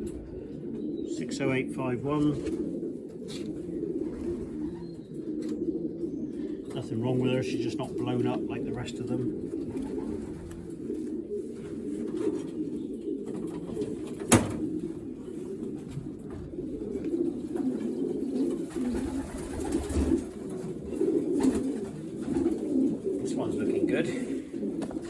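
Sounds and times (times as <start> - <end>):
pigeons cooing: 0.0 - 25.0.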